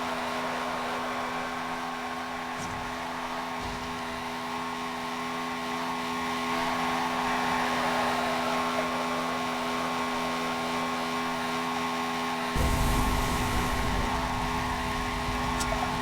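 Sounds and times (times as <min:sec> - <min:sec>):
mechanical whir with hum: 0:12.4 - 0:16.0.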